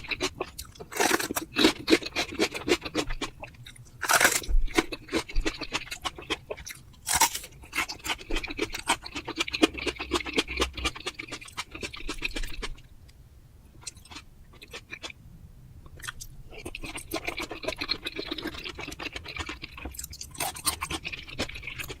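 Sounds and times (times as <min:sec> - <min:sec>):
close chewing mouth clicks: 0:15.9 - 0:22.0.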